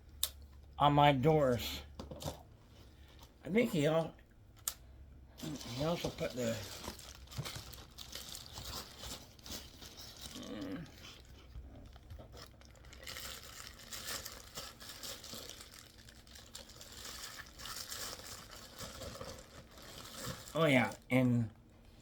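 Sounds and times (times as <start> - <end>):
clicks and crunches: 4.5 - 4.8, 5.4 - 20.6
packaging rustling and crinkling: 5.4 - 21.0.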